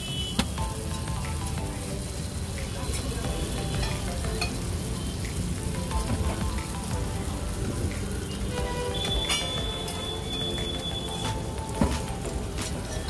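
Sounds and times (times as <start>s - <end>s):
background music: 0.0s - 13.0s
omelette sizzling on griddle: 0.0s - 13.0s.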